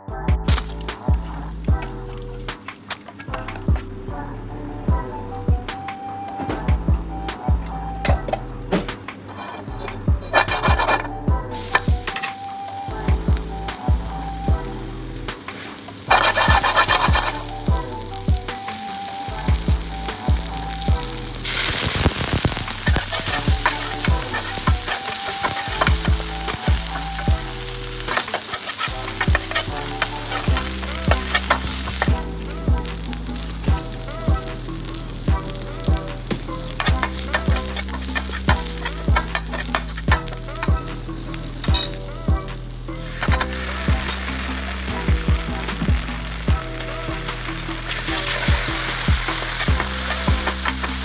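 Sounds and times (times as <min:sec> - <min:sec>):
background music with beat: 0:00.0 - 0:51.0.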